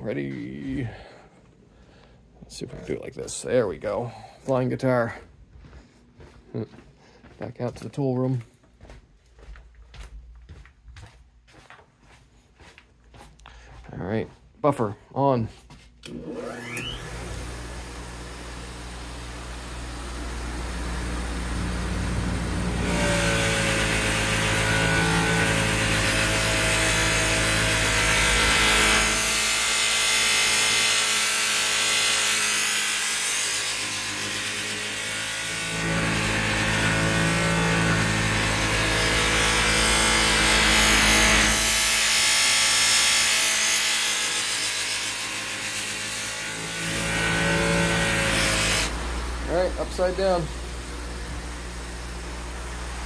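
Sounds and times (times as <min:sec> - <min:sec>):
buffer motor humming: 0:16.2 - 0:29.2, 0:47.0 - 0:53.0.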